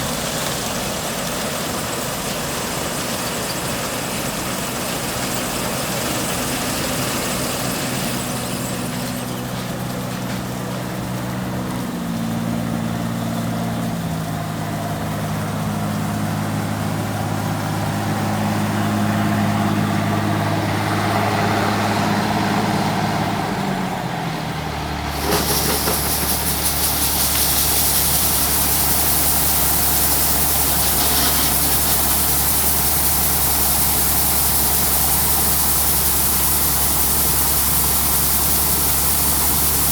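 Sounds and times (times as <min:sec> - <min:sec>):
farm machinery engine running: 0:00.0 - 0:39.9
loud hiss: 0:25.1 - 0:39.9.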